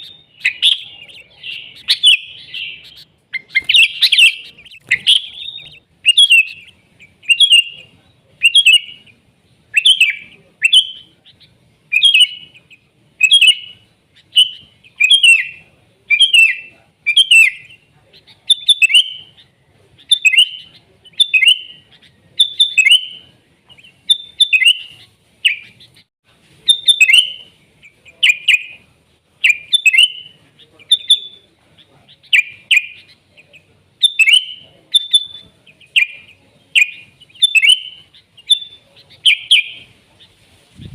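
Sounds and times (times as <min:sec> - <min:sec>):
bird chirping song: 0:00.0 - 0:26.1, 0:26.7 - 0:28.8, 0:29.4 - 0:40.9.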